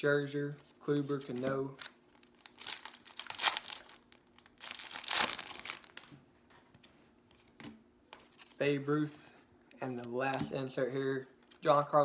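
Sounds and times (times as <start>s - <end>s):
foil wrapper crinkling and tearing: 1.8s - 6.1s.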